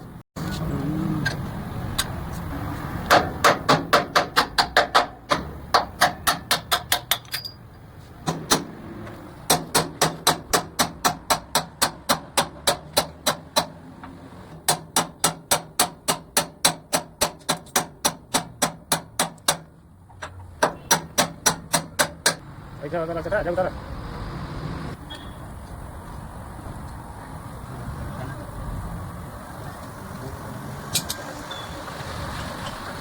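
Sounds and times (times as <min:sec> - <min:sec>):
hammer striking steel: 0:03.1 - 0:07.6, 0:09.5 - 0:13.8, 0:14.6 - 0:19.7, 0:20.6 - 0:22.4.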